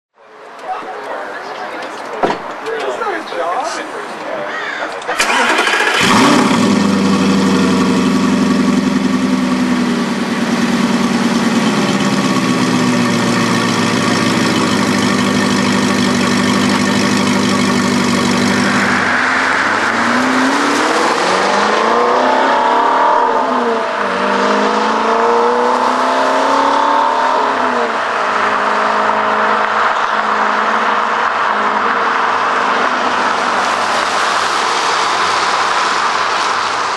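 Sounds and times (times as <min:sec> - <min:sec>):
car engine idling: 0:05.1 - 0:21.6
car accelerating: 0:05.1 - 0:36.9.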